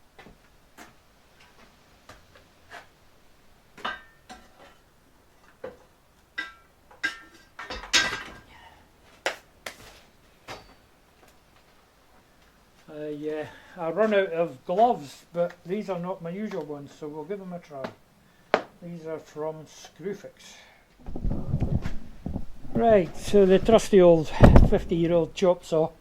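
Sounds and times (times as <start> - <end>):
objects clattering: 3.8 - 8.5, 21.0 - 25.4.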